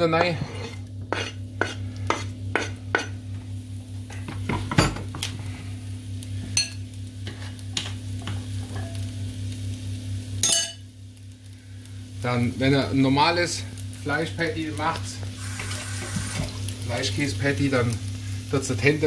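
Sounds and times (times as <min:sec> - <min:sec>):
utensil scraping a pan: 0:00.0 - 0:03.2
onions sizzling in a frying pan: 0:00.0 - 0:19.0.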